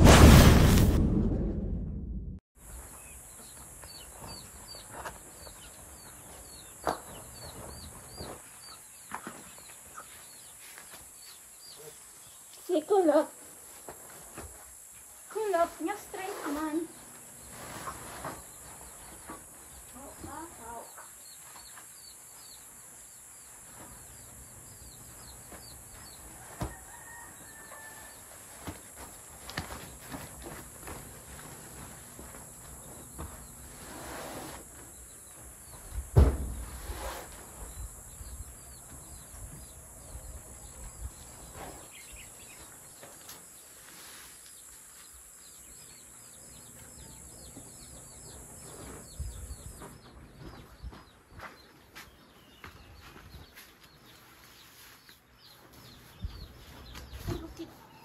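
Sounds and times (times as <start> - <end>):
sharp sounds: 0.0 - 2.4.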